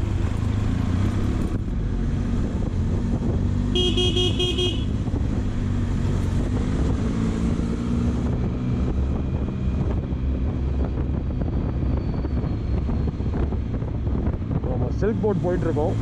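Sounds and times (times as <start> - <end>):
wind rushing over microphone: 0.0 - 3.8, 4.8 - 16.0
motorcycle engine drone: 0.0 - 16.0
vehicle horn beeping: 3.7 - 5.0.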